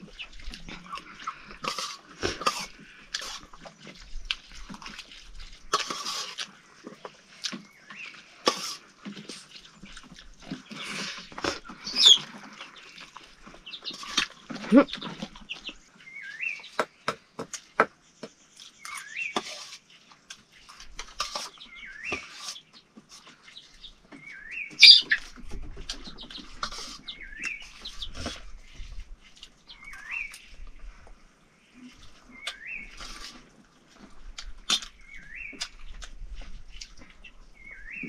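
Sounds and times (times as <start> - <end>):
bird whistling call: 24.3 - 25.2.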